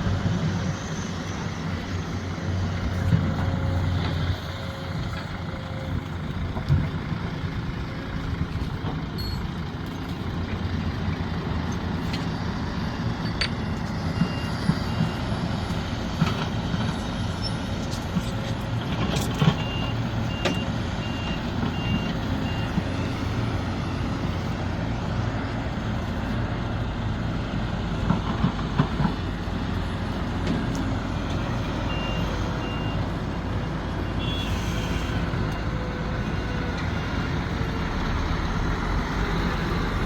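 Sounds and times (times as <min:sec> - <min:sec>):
excavator diesel engine running: 0:00.0 - 0:40.0
reversing alarm beeping: 0:19.6 - 0:24.1, 0:31.8 - 0:33.1.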